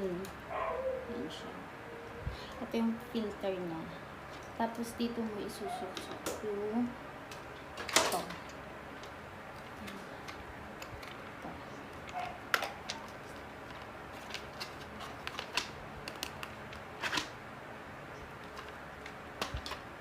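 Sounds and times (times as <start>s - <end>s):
hard plastic parts clicking: 7.3s - 17.3s, 18.4s - 19.9s.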